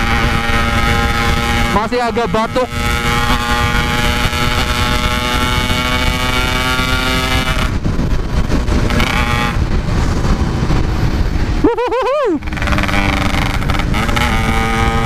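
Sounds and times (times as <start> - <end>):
two-stroke motorcycle engine: 0.0 - 11.5, 12.4 - 15.0
wind and road rush: 0.0 - 15.0
person talking: 1.7 - 2.8.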